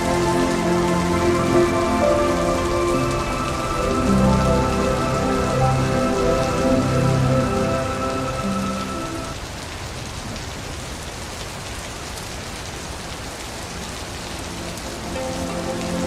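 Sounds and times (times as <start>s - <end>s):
soft sustained music tones: 0.0s - 9.4s, 14.3s - 16.0s
rain splashing on wet surface: 0.0s - 16.0s.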